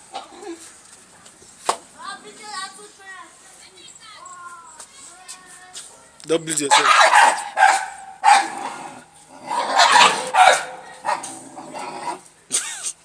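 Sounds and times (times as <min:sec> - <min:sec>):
dog barking: 0:06.7 - 0:08.8, 0:09.5 - 0:11.4.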